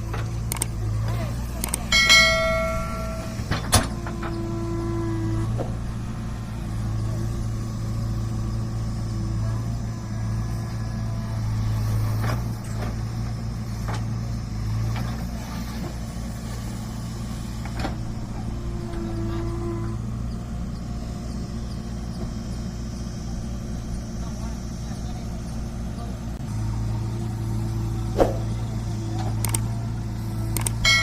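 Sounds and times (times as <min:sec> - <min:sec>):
diesel machinery engine running: 0:00.0 - 0:31.0
higher hum: 0:01.9 - 0:06.6.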